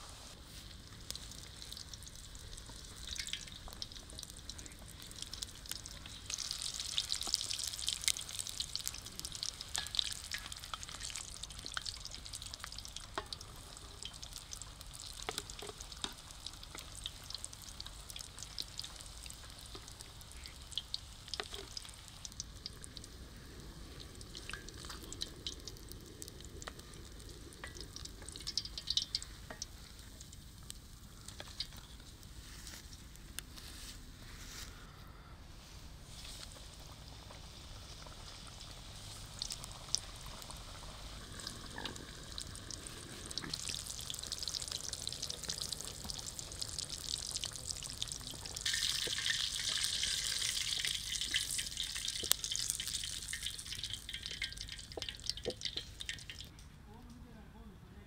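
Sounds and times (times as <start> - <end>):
food frying in hot oil: 0.0 - 33.2, 36.1 - 56.5.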